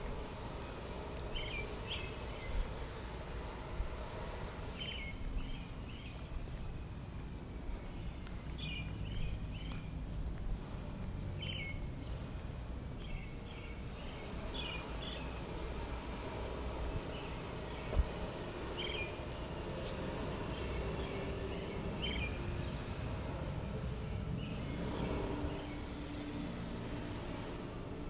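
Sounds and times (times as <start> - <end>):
small birds chirping: 1.2 - 2.7, 7.7 - 10.4, 11.3 - 26.4.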